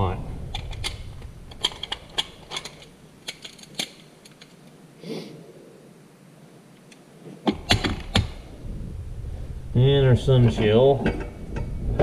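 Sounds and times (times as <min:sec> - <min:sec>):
metal parts clinking: 0:00.5 - 0:04.6.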